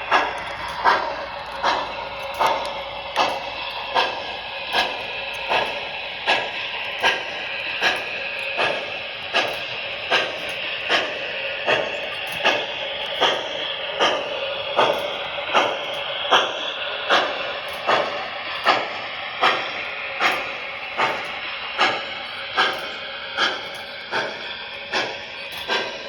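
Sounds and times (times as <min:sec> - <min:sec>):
model steam locomotive hissing: 0:00.0 - 0:26.0.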